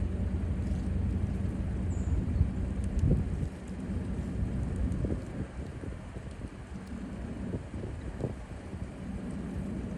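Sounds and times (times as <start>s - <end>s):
faint high chirp: 1.9s - 2.2s
wind noise on microphone: 2.0s - 9.9s.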